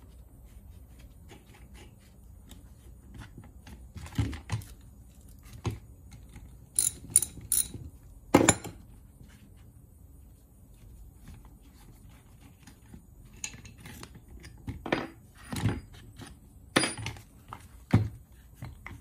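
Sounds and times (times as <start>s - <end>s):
metal parts clinking: 6.8s - 7.8s.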